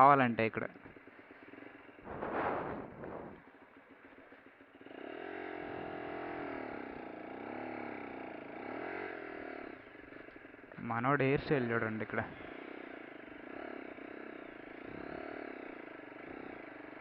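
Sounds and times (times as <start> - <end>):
motorcycle engine revving: 0.0 - 17.0
brief rush of noise: 2.1 - 3.4.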